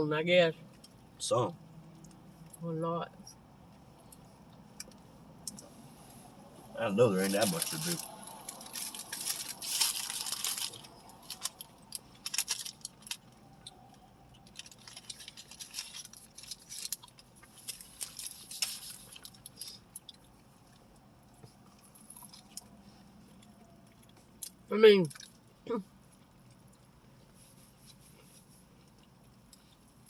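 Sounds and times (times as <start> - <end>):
chewing and wet mouth sounds: 7.2 - 30.0.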